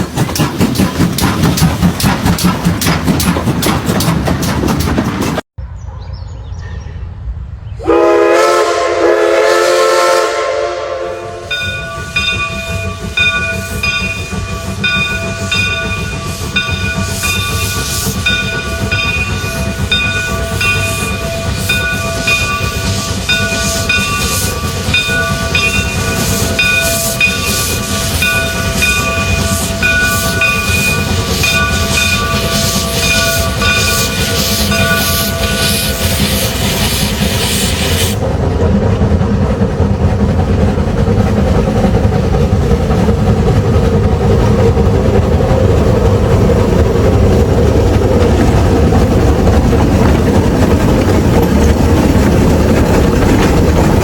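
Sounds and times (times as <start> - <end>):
train running noise: 0.0 - 54.0
steam locomotive whistle: 7.8 - 12.1, 20.4 - 38.2.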